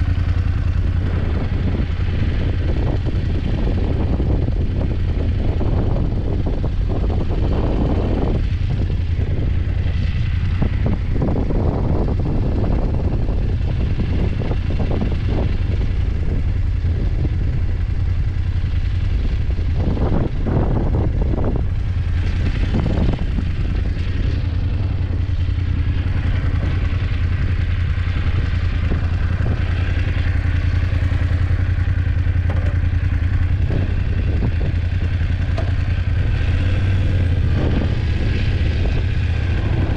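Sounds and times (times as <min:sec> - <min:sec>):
motorcycle engine running: 0:00.0 - 0:39.9
clattering knocks: 0:32.4 - 0:34.5.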